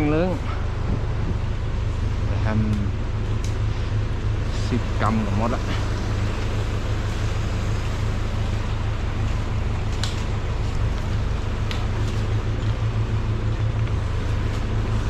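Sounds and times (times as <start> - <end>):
wind buffeting microphone: 0.6 - 1.8.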